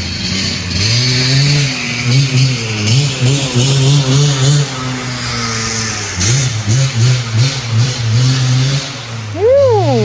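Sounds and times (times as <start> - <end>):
engine revving: 0.0 - 10.0.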